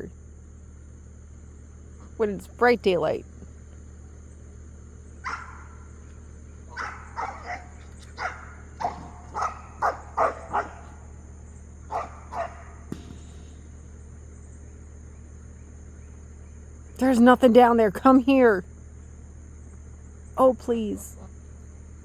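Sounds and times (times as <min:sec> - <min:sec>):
dog barking: 0:05.2 - 0:05.8, 0:06.7 - 0:11.0, 0:11.9 - 0:12.9.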